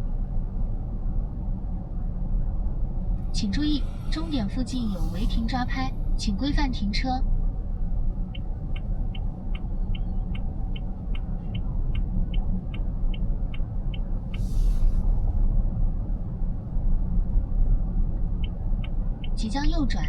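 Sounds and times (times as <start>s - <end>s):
cabin road rumble: 0.0s - 20.0s
turn signal ticking: 8.2s - 14.5s, 18.2s - 20.0s
brief hiss: 14.4s - 15.0s.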